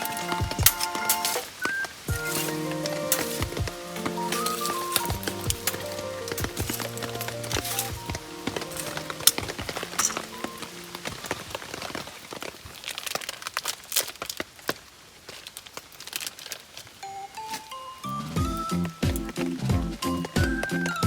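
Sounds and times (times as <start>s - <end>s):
background music: 0.0s - 11.3s, 17.0s - 21.0s
raindrops ticking and tapping: 0.0s - 21.0s.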